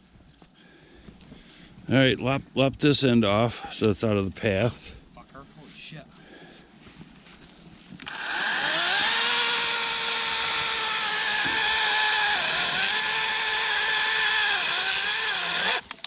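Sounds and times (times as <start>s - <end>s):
electric chainsaw cutting log: 8.0s - 16.0s.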